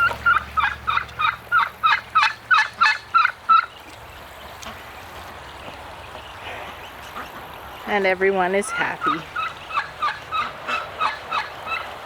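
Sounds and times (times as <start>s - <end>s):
duck quacking: 6.4s - 11.9s.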